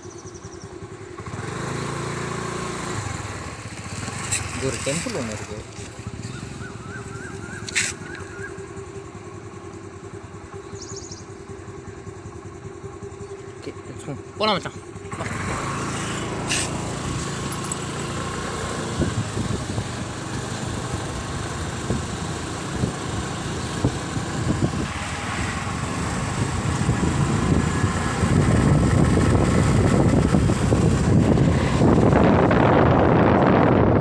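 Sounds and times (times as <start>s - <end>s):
motorcycle engine running: 0.0s - 34.0s
road and wind noise: 0.0s - 34.0s.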